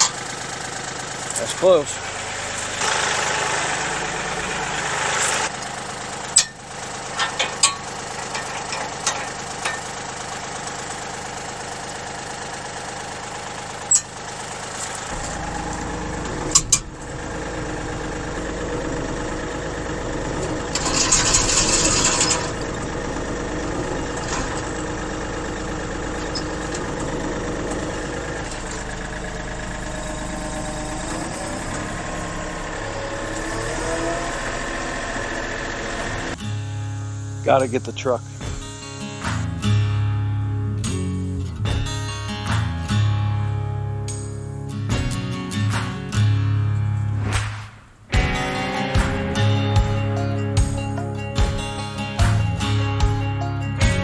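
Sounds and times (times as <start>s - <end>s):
tractor diesel engine idling: 0.0s - 47.3s, 47.9s - 54.0s
sharp knocks: 38.4s - 39.6s, 47.2s - 50.8s
short hiss: 47.2s - 48.2s.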